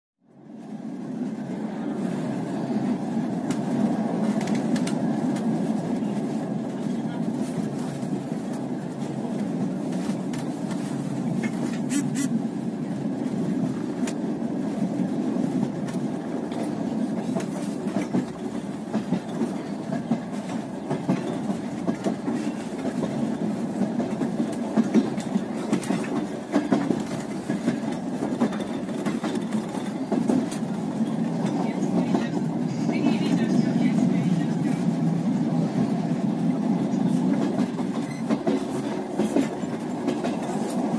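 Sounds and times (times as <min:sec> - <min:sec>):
train wheels rumbling on rails: 0:00.3 - 0:40.9
sharp clicks and clacks: 0:03.4 - 0:05.5.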